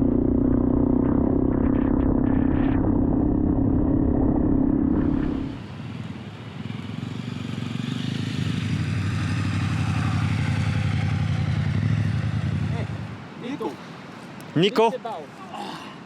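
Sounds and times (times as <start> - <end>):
rushing wind noise: 0.0 - 5.8
motorcycle engine running: 0.0 - 13.1.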